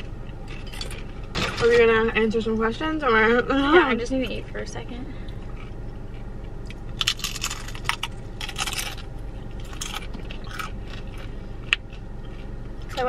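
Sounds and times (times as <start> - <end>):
chips crunching while chewed: 5.4 - 13.0.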